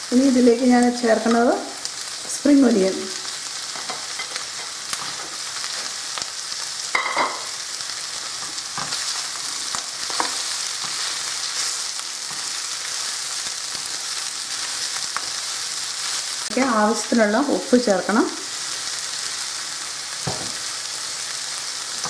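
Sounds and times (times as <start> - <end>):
food sizzling in a wok: 0.0 - 22.0
spatula scraping and tapping pan: 10.1 - 11.0.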